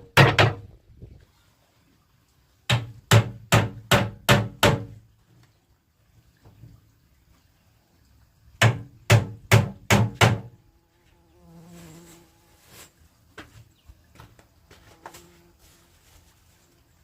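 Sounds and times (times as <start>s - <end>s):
fly buzzing: 10.8s - 13.0s, 14.7s - 16.0s.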